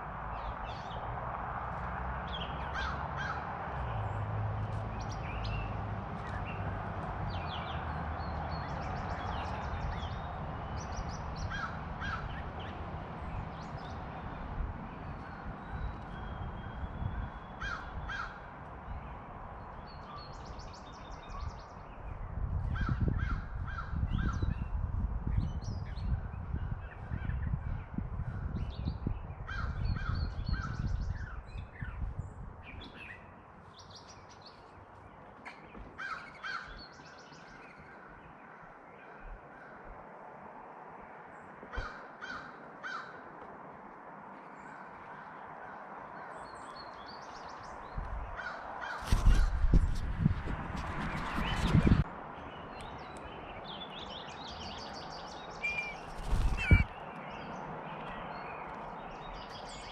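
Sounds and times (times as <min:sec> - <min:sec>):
small birds chirping: 0:02.2 - 0:39.4, 0:50.8 - 0:59.9
crows cawing: 0:02.6 - 0:03.5, 0:11.5 - 0:12.4, 0:17.6 - 0:18.5, 0:36.0 - 0:36.8, 0:41.7 - 0:43.2, 0:48.4 - 0:49.5.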